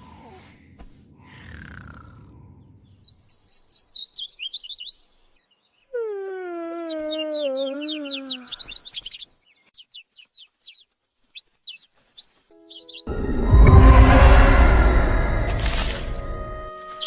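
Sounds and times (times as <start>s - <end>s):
loud crash-like burst: 13.1s - 16.7s.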